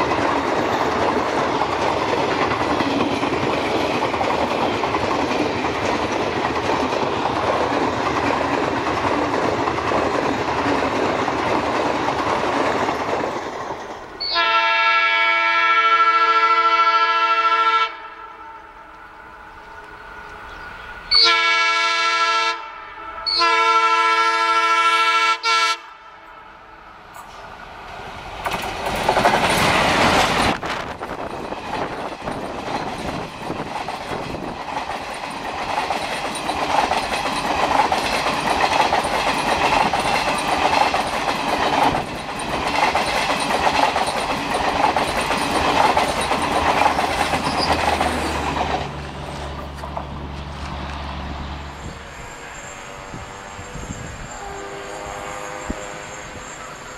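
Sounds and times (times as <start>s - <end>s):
clickety-clack of coaches: 0.0s - 14.6s, 28.4s - 51.0s
train passing: 0.0s - 56.9s
locomotive horn blasts: 14.2s - 18.8s, 21.1s - 26.4s, 54.2s - 56.4s.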